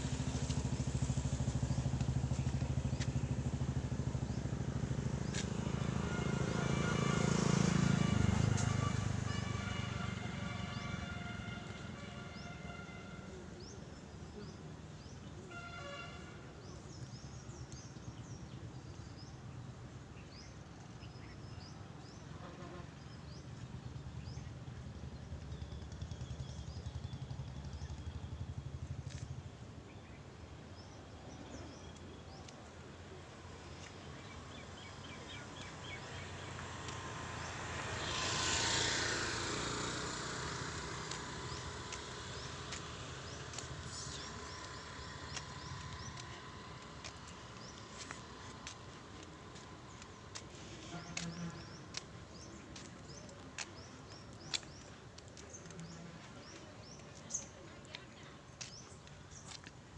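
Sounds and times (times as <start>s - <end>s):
low uneven rumble: 0.0s - 7.2s, 39.4s - 59.9s
vehicle passing: 0.0s - 12.4s, 32.8s - 58.1s
small birds chirping: 40.7s - 59.8s.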